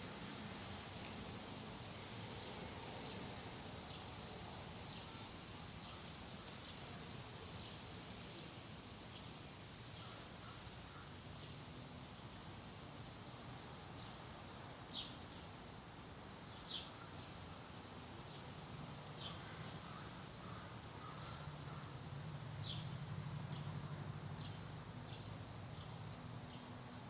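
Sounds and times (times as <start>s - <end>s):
small bird chirping: 19.2s - 21.9s, 22.6s - 23.7s, 24.4s - 26.7s.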